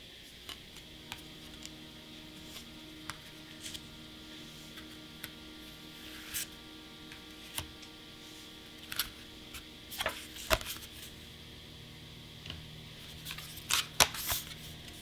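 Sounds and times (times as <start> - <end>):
card sleeves clicking and tapping: 8.8 - 9.1, 13.3 - 14.6.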